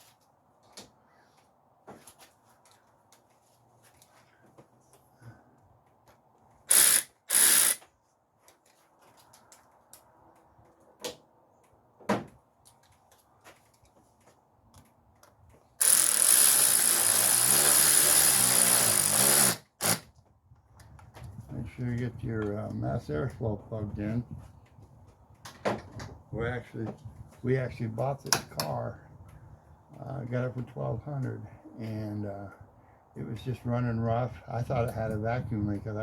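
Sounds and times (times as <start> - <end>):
power tool running in bursts: 6.7 - 7.8, 15.8 - 20.0.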